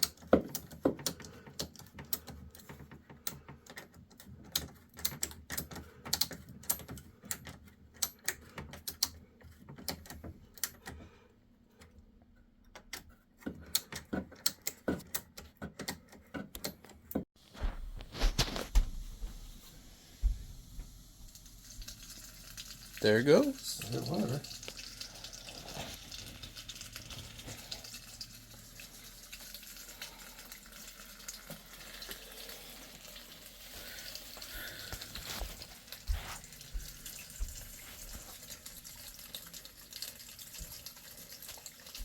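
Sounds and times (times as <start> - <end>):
rustling handling sound: 16.9 - 19.9, 32.5 - 38.5.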